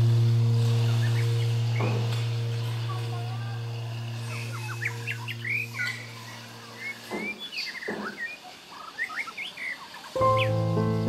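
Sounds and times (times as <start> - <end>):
held low musical tone: 0.0 - 7.1, 10.2 - 11.0
birds chirping: 0.0 - 11.0.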